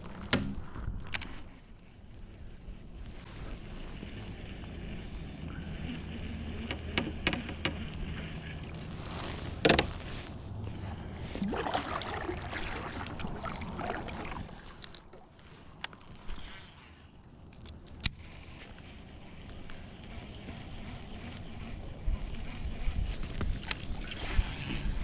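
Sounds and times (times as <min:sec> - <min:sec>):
small clicks: 0:00.0 - 0:10.8, 0:14.6 - 0:25.0
handling noise: 0:03.0 - 0:19.8
water sloshing against kayak hull: 0:06.7 - 0:17.2.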